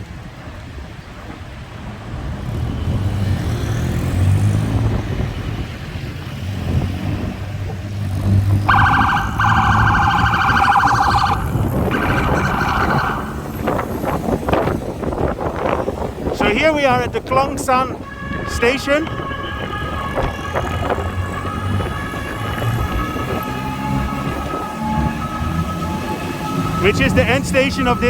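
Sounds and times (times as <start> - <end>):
street traffic: 0.0 - 28.0
vehicle engine passing: 6.4 - 14.5
pulsing electronic siren: 8.7 - 13.9, 18.0 - 28.0.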